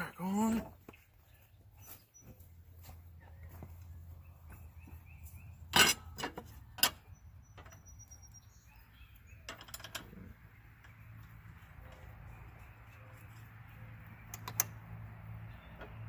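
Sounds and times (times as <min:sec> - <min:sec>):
metal tools clinking: 0:05.6 - 0:08.2, 0:09.4 - 0:11.0
light clicks: 0:14.2 - 0:14.8.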